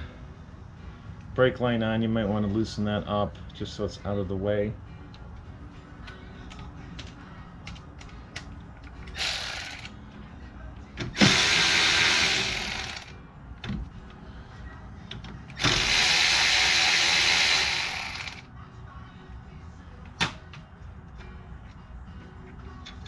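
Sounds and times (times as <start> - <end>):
power ratchet spinning bolts: 9.1 - 9.9, 11.2 - 13.1, 15.6 - 18.4.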